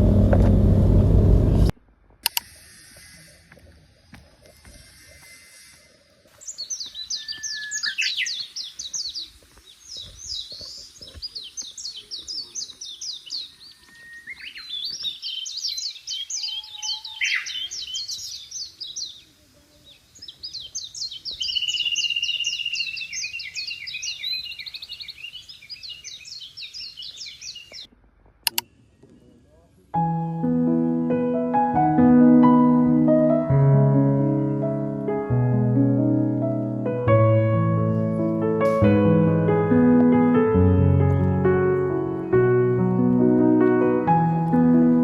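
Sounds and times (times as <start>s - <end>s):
songbirds singing falling notes: 4.5s - 27.9s
high bird trill: 4.7s - 9.3s, 11.6s - 19.3s, 20.2s - 27.9s.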